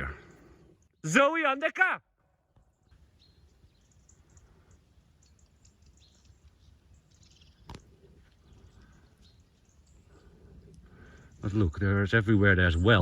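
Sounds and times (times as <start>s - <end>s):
faint bird chirps: 2.6s - 11.8s.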